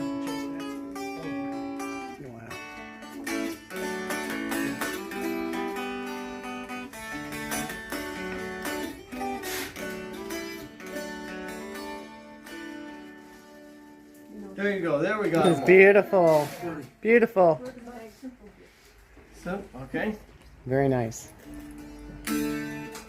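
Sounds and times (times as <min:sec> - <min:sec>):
plucked dulcimer melody: 0:00.0 - 0:13.8.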